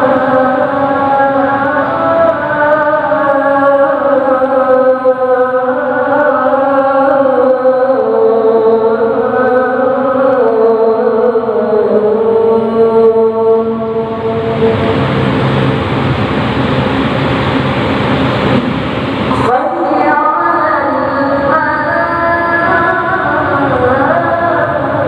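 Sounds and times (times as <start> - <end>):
person chanting long notes: 0.0 - 15.9, 19.3 - 25.0.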